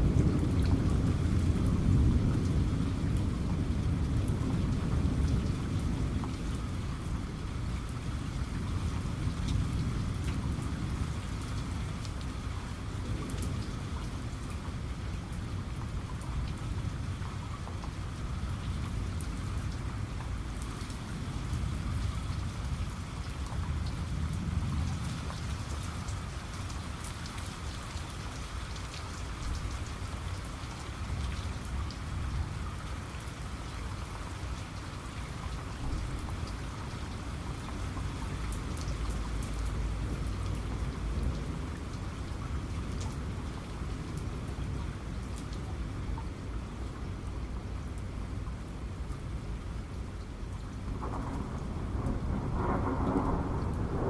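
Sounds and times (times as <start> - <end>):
low thunder rumbles: 0.0 - 17.3, 18.2 - 26.6, 50.8 - 54.0
heavy rain on hard surface: 0.0 - 54.0.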